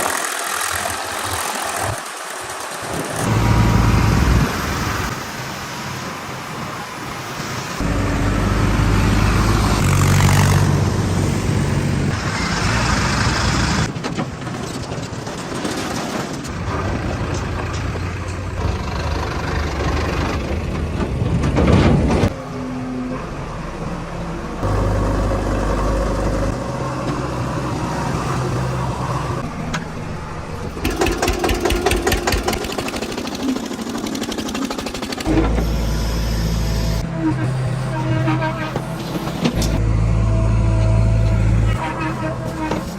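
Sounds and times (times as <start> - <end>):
tractor diesel engine running: 16.5 - 37.0.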